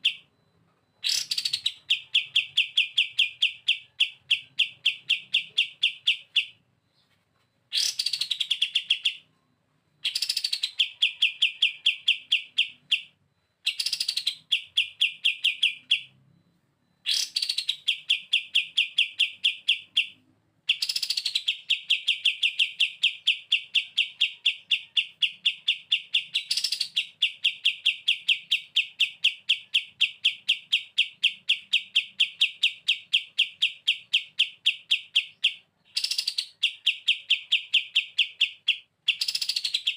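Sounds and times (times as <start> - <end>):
songbird rattling trill: 20.7 - 39.9.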